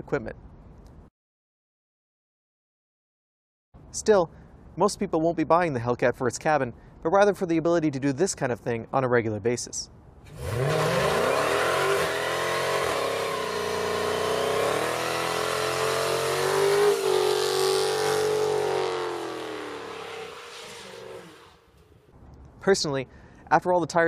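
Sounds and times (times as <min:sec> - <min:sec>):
tires spinning: 0:10.2 - 0:22.0
car engine revving high: 0:10.3 - 0:21.8.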